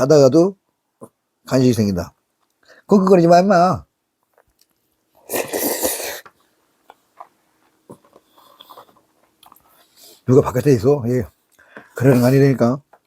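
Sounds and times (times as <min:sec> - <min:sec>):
breathy sneeze-like burst: 0:05.3 - 0:06.3.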